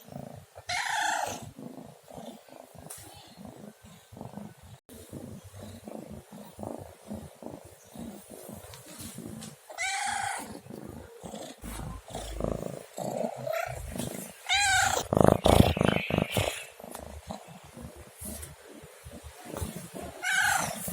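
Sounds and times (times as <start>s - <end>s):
cat purring: 0.0s - 20.9s
cat meowing: 14.5s - 15.1s.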